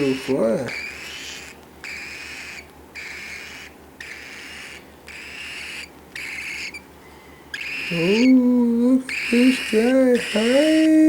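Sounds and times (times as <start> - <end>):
baby bird raspy hissing calls: 0.0 - 6.9, 7.5 - 8.4, 9.0 - 11.0.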